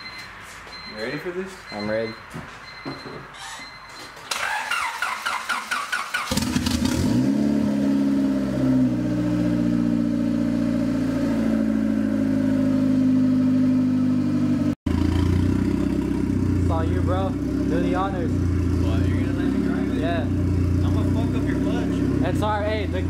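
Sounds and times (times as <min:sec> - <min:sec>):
car starter cranking: 0:04.3 - 0:07.1
car engine revving and idling: 0:06.2 - 0:23.0.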